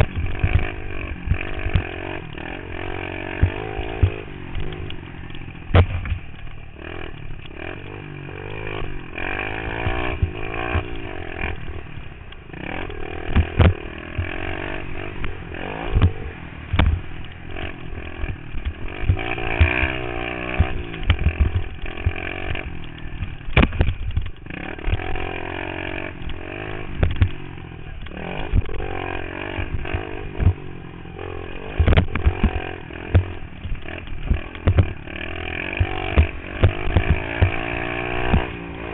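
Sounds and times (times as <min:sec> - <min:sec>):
pit bike engine revving: 0:00.0 - 0:38.9
sharp knocks: 0:15.9 - 0:17.0.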